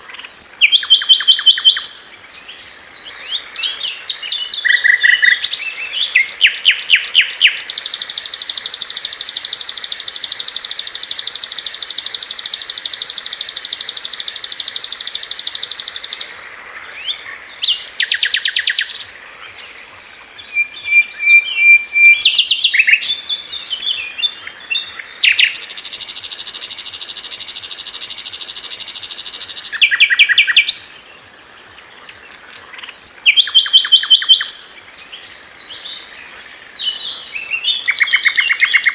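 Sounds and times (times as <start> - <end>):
bird chattering: 6.2 - 16.3, 25.0 - 30.7
flycatcher high rattling trills: 6.8 - 16.3, 25.3 - 29.8.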